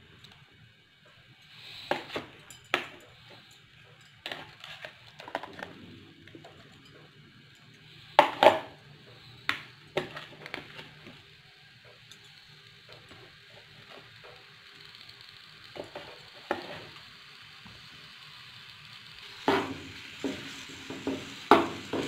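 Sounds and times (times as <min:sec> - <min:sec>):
utensil scraping a frying pan: 0:01.4 - 0:07.1, 0:07.9 - 0:11.2, 0:15.8 - 0:17.0, 0:19.2 - 0:22.0.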